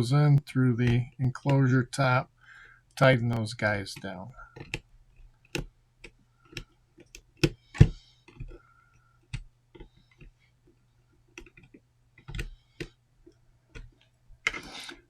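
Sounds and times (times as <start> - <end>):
clicks and knocks on plastic: 3.9 - 14.7.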